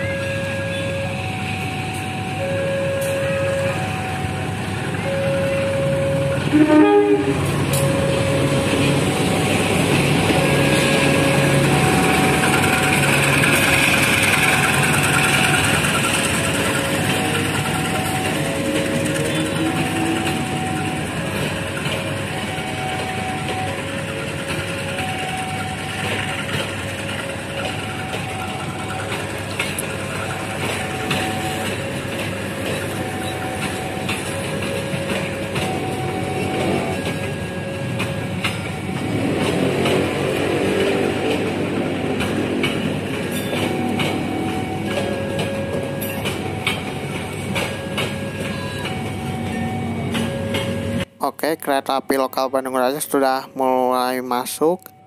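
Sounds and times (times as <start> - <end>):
coach wheels running: 0.0 - 52.3
diesel locomotive engine: 0.0 - 55.0.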